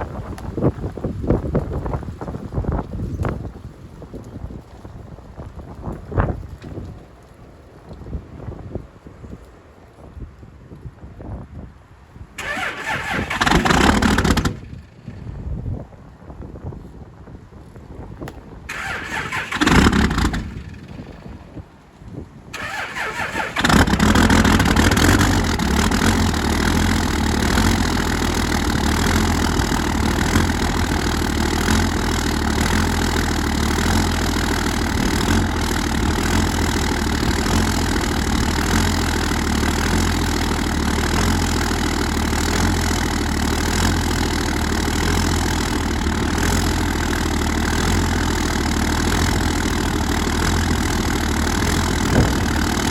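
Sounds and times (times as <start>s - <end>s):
vehicle engine cranking and idling: 12.4s - 15.4s, 18.3s - 52.9s.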